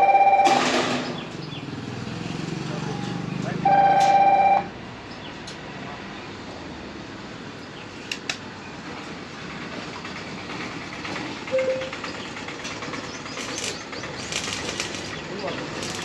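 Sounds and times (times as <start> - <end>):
horn sounding two notes: 3.6 - 4.6
short high beep: 11.5 - 12.0.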